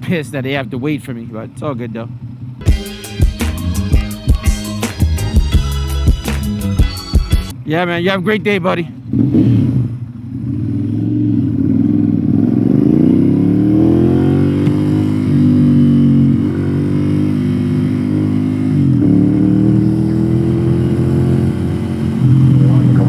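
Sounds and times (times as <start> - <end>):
motorcycle engine accelerating: 9.0 - 23.0.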